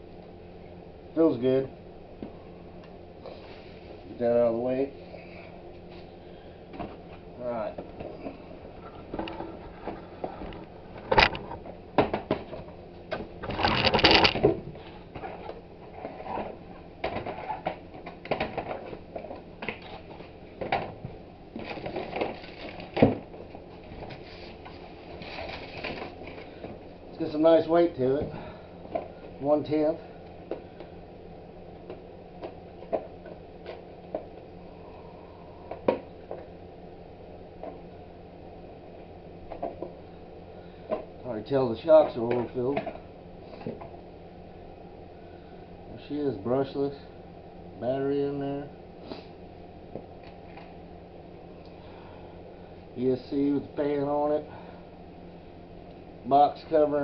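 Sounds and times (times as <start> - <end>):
packaging scraping and rustling: 13.4 - 14.4, 21.6 - 23.0, 24.0 - 26.5.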